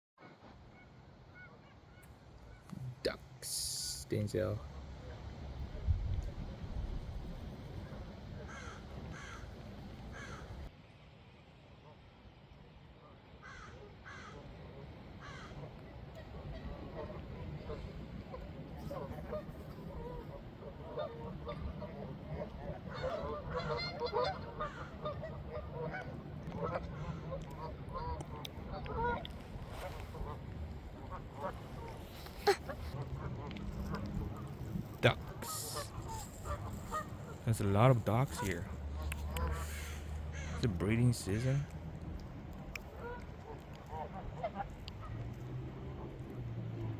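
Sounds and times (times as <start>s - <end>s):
ducks honking: 7.8s - 10.7s, 13.4s - 46.0s.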